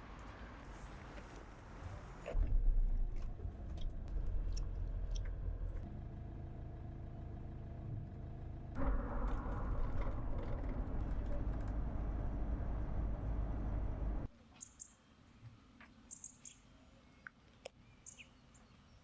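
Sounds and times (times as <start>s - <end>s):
vehicle engine and road rumble: 0.0s - 14.3s.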